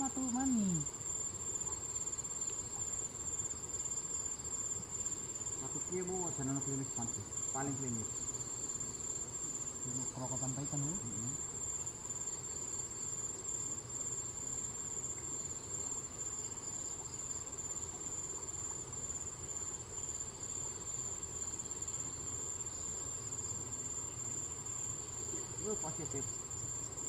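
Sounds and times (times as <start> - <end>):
insects chirring: 0.0 - 27.0.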